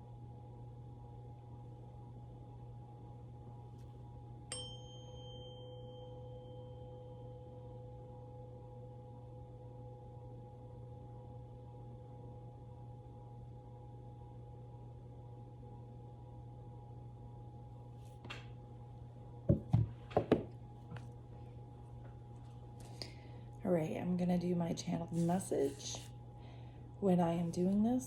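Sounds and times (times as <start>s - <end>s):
faint steady hum: 0.0s - 28.0s
struck metal tone ringing: 4.5s - 7.4s.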